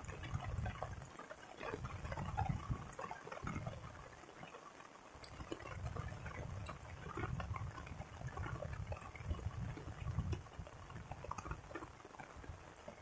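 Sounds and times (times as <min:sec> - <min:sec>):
low rain rumble: 0:00.0 - 0:13.0
rain drops ticking: 0:00.0 - 0:13.0.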